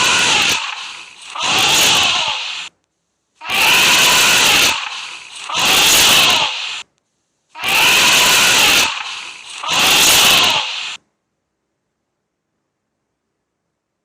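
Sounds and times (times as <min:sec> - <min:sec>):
elephant trumpeting: 0:00.0 - 0:02.7, 0:03.4 - 0:06.8, 0:07.6 - 0:11.0.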